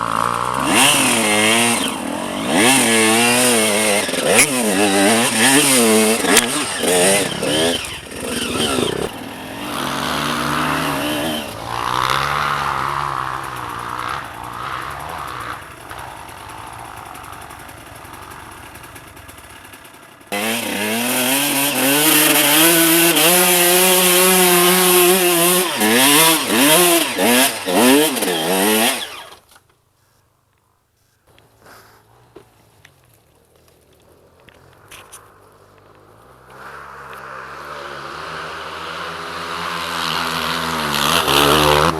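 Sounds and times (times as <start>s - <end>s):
dirt bike engine revving: 0.0s - 29.5s, 34.1s - 41.9s.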